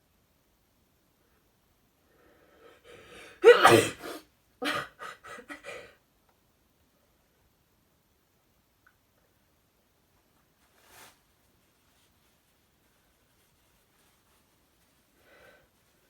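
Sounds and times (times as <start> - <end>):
dog sneezing: 3.4 - 4.8.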